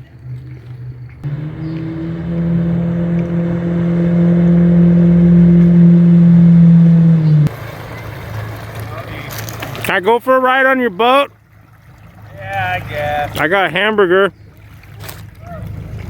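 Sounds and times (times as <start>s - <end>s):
engine running: 1.2s - 8.6s.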